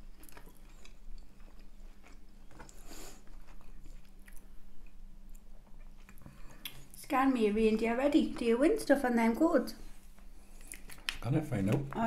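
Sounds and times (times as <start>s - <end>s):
chewing food: 0.0s - 7.0s, 10.4s - 11.2s
low steady hum: 0.0s - 12.0s.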